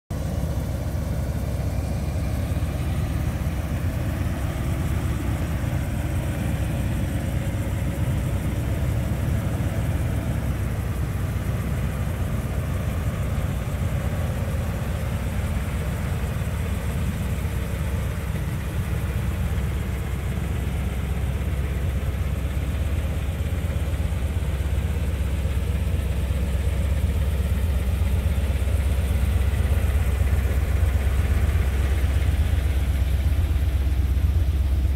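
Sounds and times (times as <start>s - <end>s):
car engine idling: 0.1s - 34.9s.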